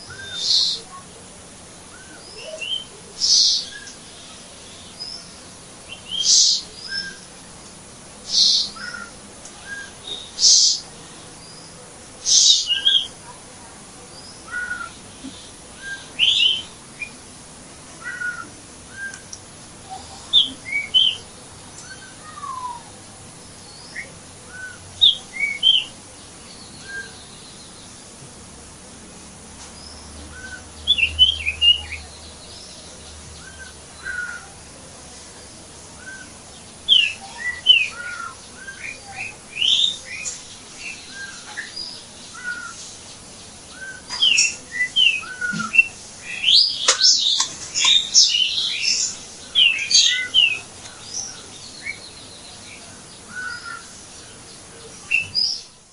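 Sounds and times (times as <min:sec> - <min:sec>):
faint background hiss: 0:00.0 - 0:55.9
songbirds chirping: 0:00.0 - 0:55.9.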